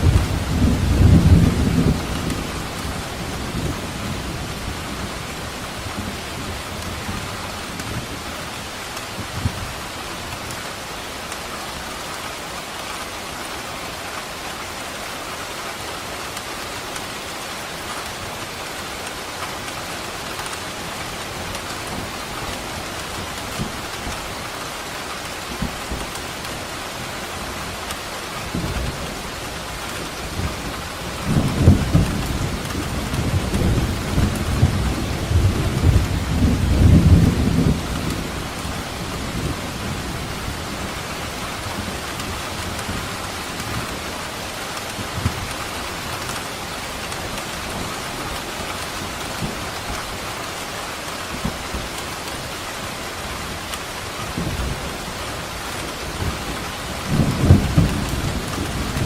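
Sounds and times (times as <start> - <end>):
thunder rumbling: 0.0 - 8.1, 28.5 - 50.2, 54.2 - 59.0
heavy rain falling: 0.0 - 59.0.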